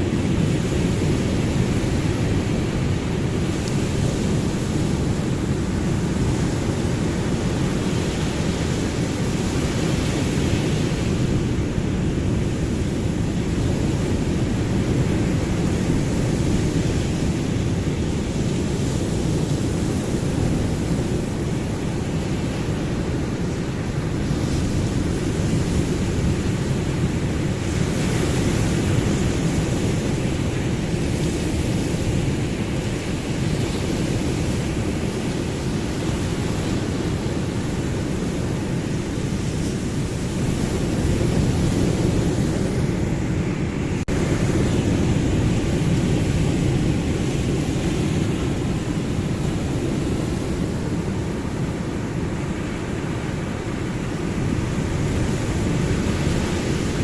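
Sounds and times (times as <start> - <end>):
ocean waves washing on shore: 0.0 - 57.0.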